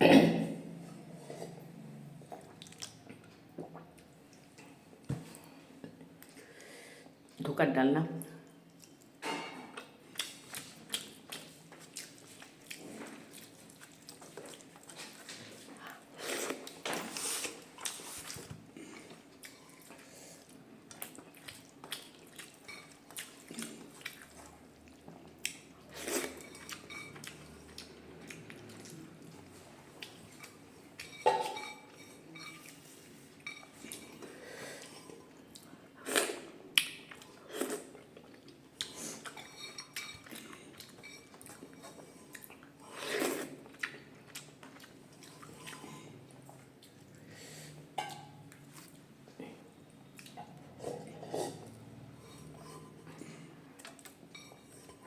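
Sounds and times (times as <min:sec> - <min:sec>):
cutlery clinking on plate: 0:31.0 - 0:32.7, 0:54.3 - 0:55.0.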